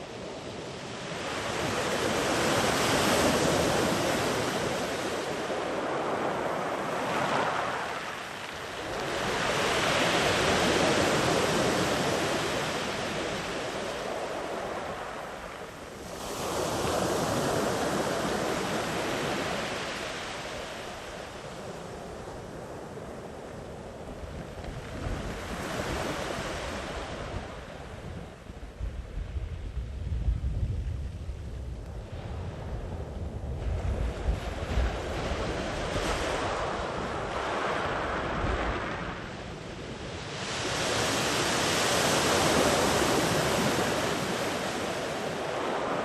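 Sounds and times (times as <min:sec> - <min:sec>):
sea waves washing up beach: 0:01.0 - 0:27.9, 0:33.6 - 0:46.0.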